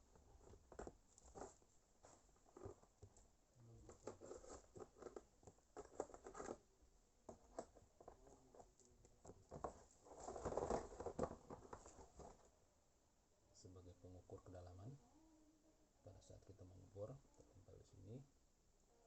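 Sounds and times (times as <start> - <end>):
packaging rustling: 3.9 - 6.6, 9.5 - 12.5.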